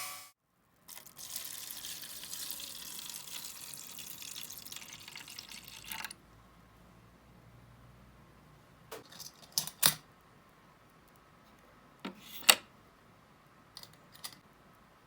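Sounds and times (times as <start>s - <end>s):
tap water running: 0.9s - 6.2s.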